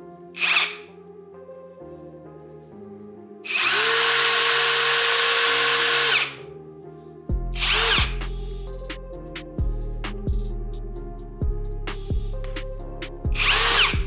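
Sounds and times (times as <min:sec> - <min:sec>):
impact driver motor whine: 0:00.4 - 0:00.8, 0:03.5 - 0:06.4, 0:07.6 - 0:08.2, 0:13.4 - 0:14.0
music with heavy bass beat: 0:07.3 - 0:14.0.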